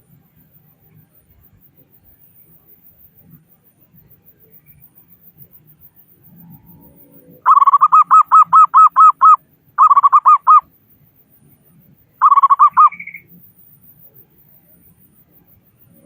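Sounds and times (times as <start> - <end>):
dove cooing: 7.4 - 10.6, 12.2 - 13.2.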